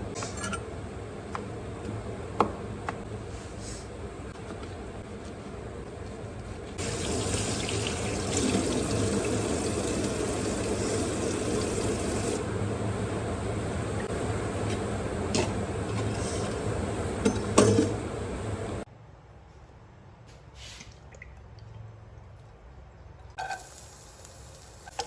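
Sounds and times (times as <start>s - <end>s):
tap water running into sink: 6.8s - 12.4s.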